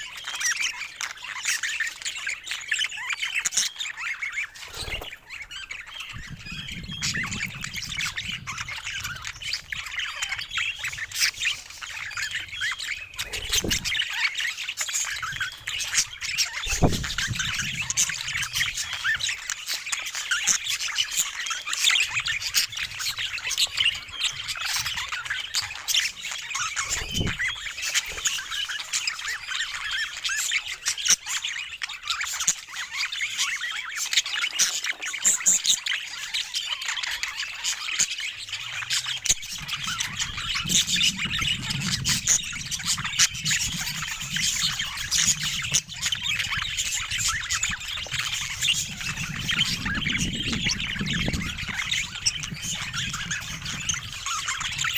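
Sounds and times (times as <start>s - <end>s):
budgerigars chattering: 0.0s - 54.9s.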